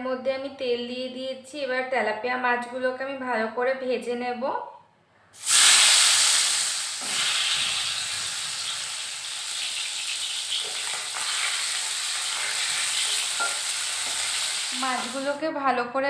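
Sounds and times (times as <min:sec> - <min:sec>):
fish sizzling in hot oil: 0:05.4 - 0:15.4.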